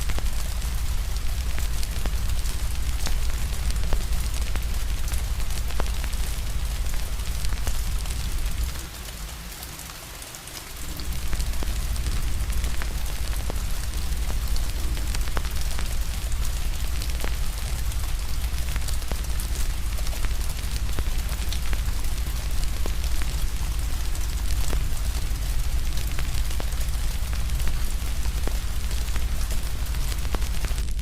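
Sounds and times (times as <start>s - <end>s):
wood fire crackling and popping: 0.0s - 9.5s, 10.6s - 31.0s
steady rain: 0.0s - 31.0s
deep low rumble: 10.8s - 31.0s.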